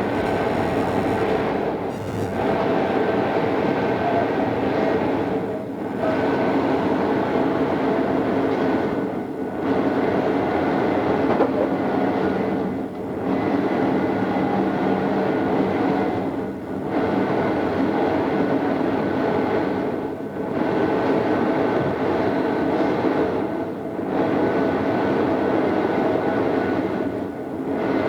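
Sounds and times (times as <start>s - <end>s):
electric train rolling rumble: 0.0s - 3.2s
train hum tones: 0.0s - 3.2s.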